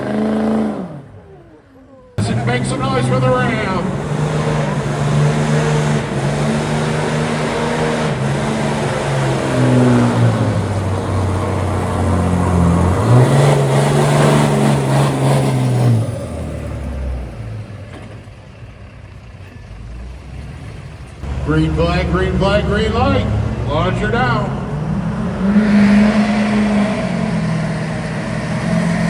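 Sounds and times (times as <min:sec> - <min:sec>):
diesel pickup engine revving: 0:00.0 - 0:29.0.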